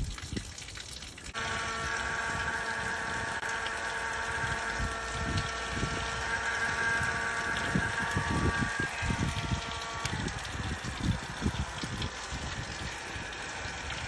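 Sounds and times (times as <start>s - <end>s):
small motor whining: 1.3s - 14.0s
wind on microphone: 4.2s - 14.0s.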